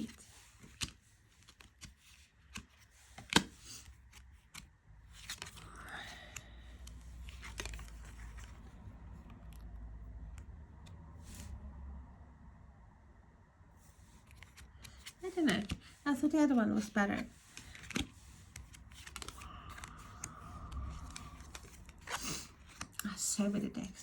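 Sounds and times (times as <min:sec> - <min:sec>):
cards clicking and tapping: 0:00.6 - 0:09.7, 0:14.2 - 0:16.0, 0:16.8 - 0:23.2
low rumble of handling noise: 0:13.8 - 0:24.0.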